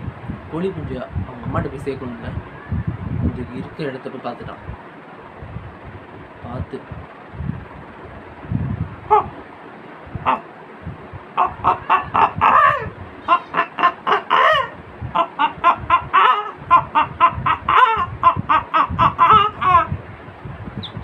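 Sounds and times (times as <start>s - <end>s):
person mimicking hen and chick: 10.2s - 10.5s, 11.4s - 20.0s.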